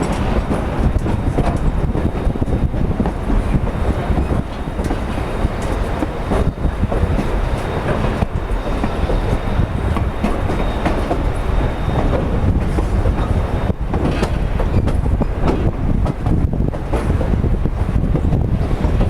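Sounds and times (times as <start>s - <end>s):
wheels clattering over rail joints: 0.0s - 17.4s
steam train rumbling: 0.0s - 19.0s
faint high wheel squeal: 4.0s - 15.4s.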